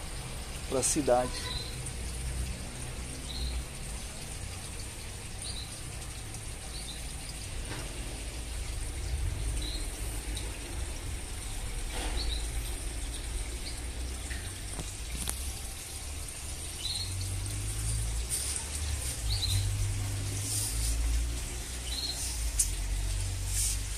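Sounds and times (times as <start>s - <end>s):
small birds chirping: 0.7s - 1.9s, 9.5s - 10.4s, 11.9s - 16.0s, 16.6s - 23.9s
faint high hiss: 17.1s - 23.9s.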